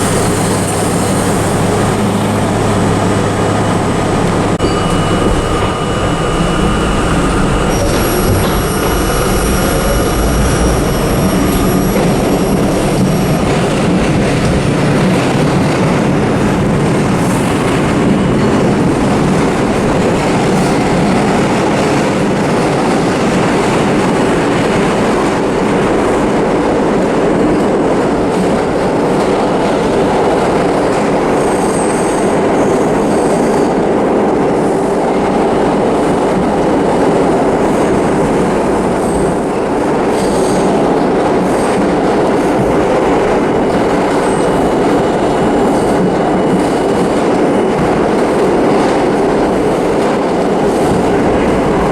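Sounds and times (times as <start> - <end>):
high wheel squeal: 0.0 - 14.0
subway train wheels on rails: 0.0 - 51.9.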